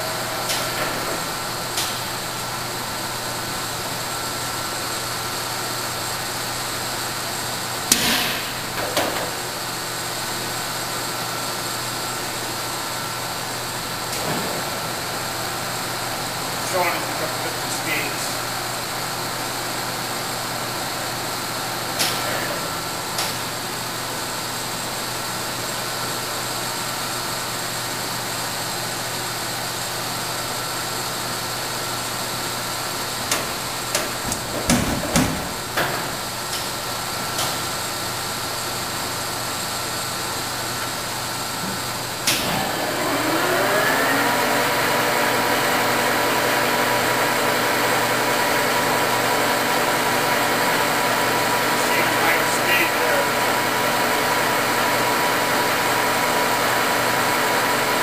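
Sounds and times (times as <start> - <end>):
lathe humming: 0.0 - 7.9, 35.4 - 58.0
sharp clunk: 7.9 - 9.2
spindle whine rising: 42.4 - 58.0.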